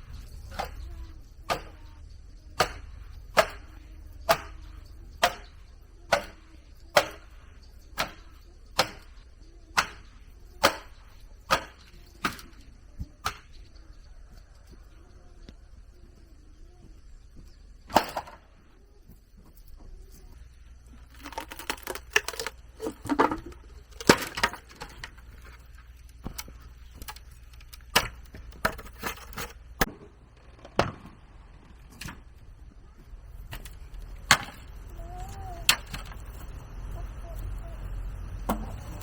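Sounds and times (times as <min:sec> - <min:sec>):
bamboo knocks and cracks: 0:01.5 - 0:01.9, 0:02.6 - 0:07.3, 0:08.0 - 0:12.6, 0:13.2 - 0:13.6, 0:17.9 - 0:18.4, 0:21.0 - 0:31.2.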